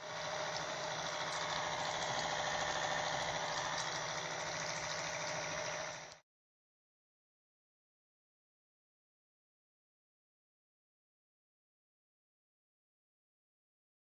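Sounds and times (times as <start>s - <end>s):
small blender motor running: 0.0s - 6.2s.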